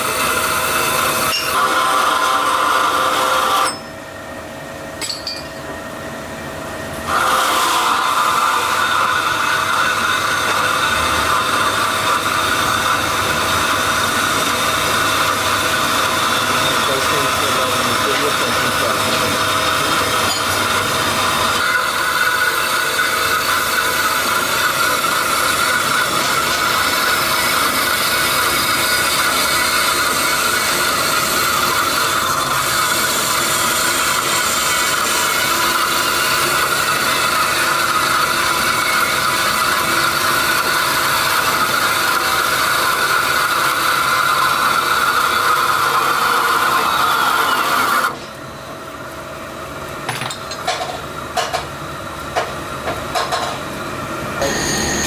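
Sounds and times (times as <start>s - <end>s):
scattered clicks and knocks: 50.1s - 51.7s, 52.3s - 53.6s.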